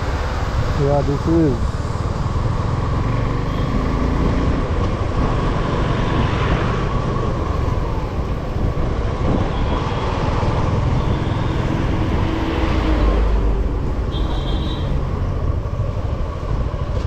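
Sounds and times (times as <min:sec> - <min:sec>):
wind on microphone: 0:04.2 - 0:14.1.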